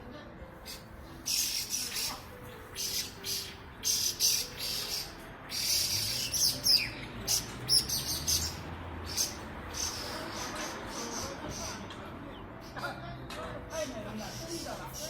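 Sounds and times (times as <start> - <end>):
bird chattering calls: 0.6 - 11.9.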